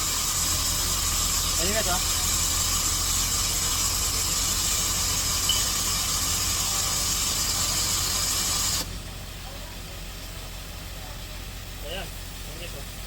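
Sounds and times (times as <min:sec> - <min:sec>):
pneumatic tool hissing: 0:00.0 - 0:09.2.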